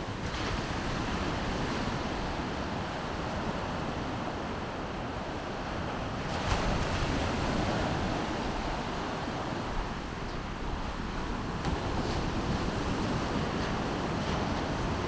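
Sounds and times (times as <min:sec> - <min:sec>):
wind buffeting microphone: 0:06.2 - 0:15.0.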